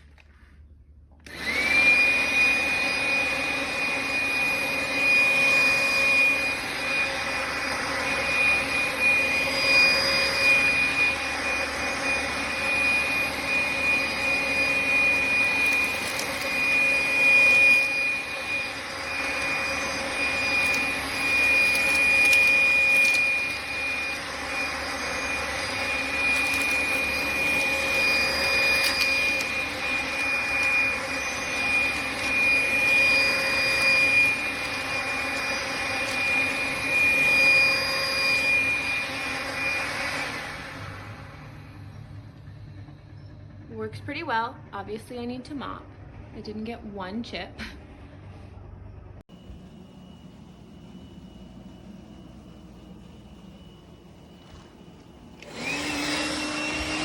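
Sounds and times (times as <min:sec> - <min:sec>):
vacuum cleaner motor whine: 0:01.1 - 0:57.0.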